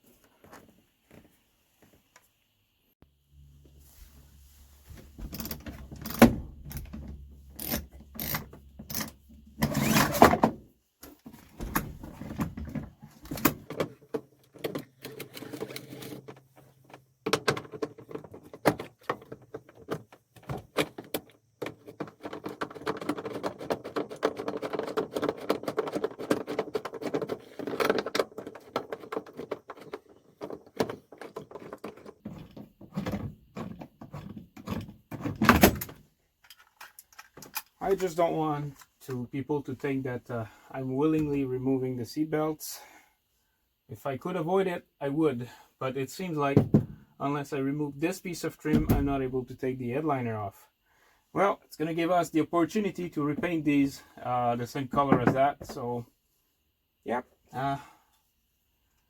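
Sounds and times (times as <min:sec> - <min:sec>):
tools and parts clicking and rattling: 0:05.2 - 0:37.8.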